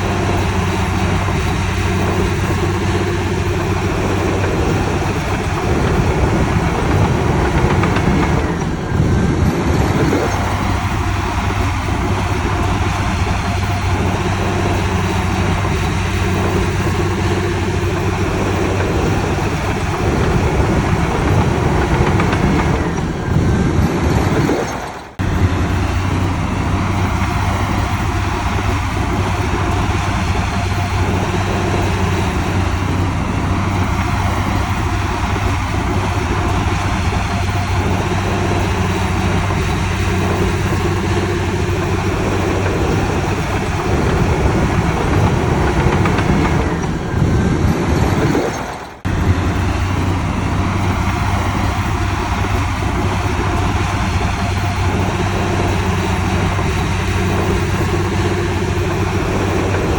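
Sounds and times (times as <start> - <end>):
diesel earthmoving machinery running: 0.0 - 59.9.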